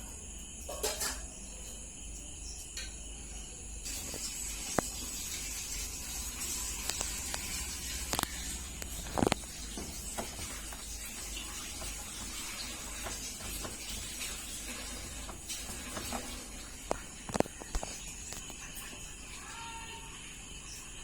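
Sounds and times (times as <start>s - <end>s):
washing machine running: 0.0s - 21.0s
washing machine clicks and knocks: 6.2s - 19.1s.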